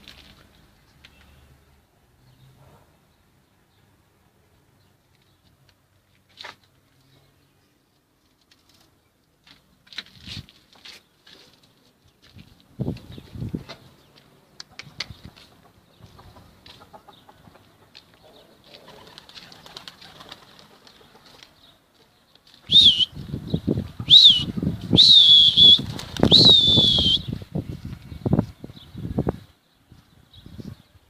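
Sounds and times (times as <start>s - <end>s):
pigeon wings flapping: 18.7s - 21.5s, 25.5s - 27.0s.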